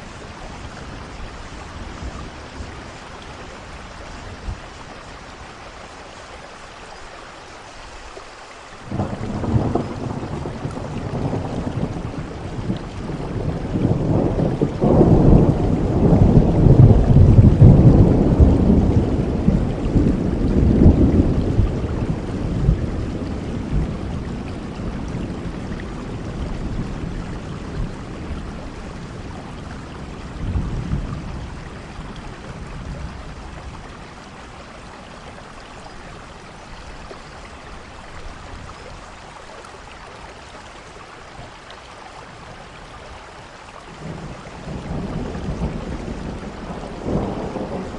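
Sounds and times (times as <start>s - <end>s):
rain falling: 0.0s - 47.9s
thunder rumbling: 8.9s - 35.5s, 43.9s - 47.9s.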